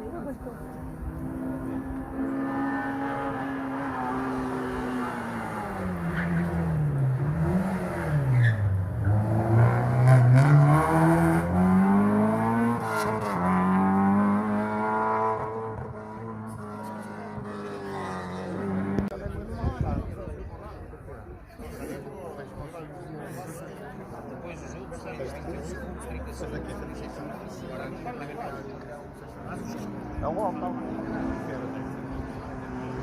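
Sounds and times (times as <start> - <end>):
rally car engine revving: 0.6 - 19.1, 29.5 - 33.0.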